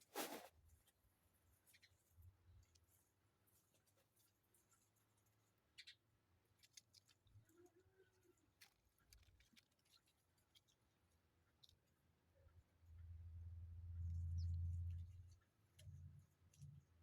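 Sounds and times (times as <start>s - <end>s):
light scratches: 0.0s - 1.0s, 1.7s - 12.0s.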